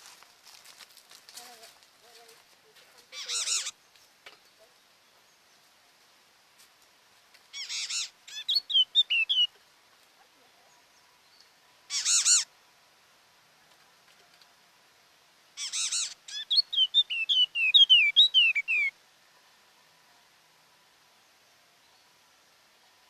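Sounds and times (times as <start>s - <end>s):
bird calling: 3.0s - 3.8s, 7.5s - 9.6s, 11.9s - 12.5s, 15.6s - 19.0s.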